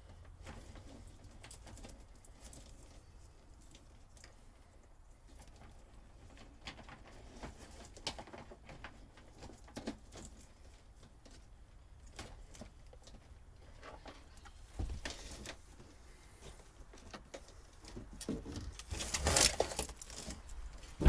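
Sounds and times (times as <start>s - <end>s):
hands clicking and rustling wiring: 0.0s - 21.0s.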